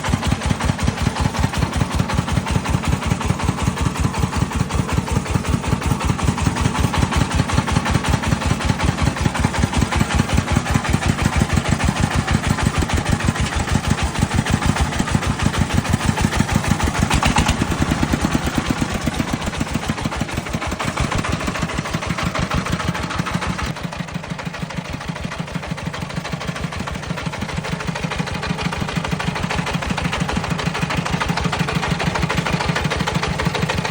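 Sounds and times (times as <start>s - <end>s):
diesel engine thudding: 0.1s - 25.4s.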